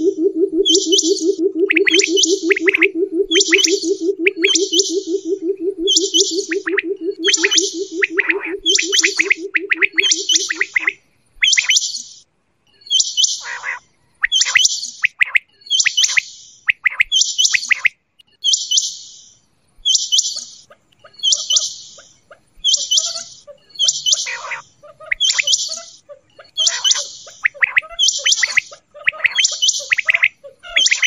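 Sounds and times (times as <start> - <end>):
quail calling: 0.0 - 11.8, 13.4 - 14.6, 19.9 - 31.0.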